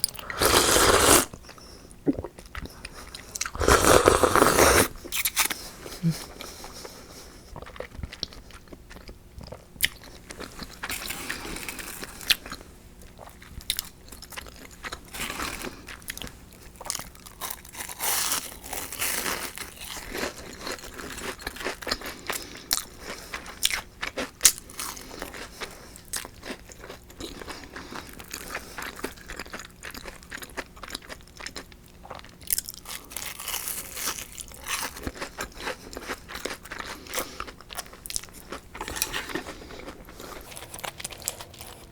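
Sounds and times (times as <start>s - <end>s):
wet chewing sounds: 0.0s - 12.6s, 21.8s - 41.9s
crunchy bites into fried food: 3.5s - 5.6s, 32.4s - 36.8s.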